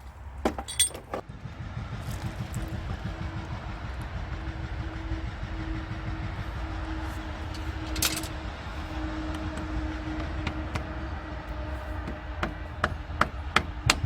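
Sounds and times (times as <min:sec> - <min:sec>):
metallic tool clink: 0:00.6 - 0:01.2
machine engine drone: 0:01.2 - 0:14.0.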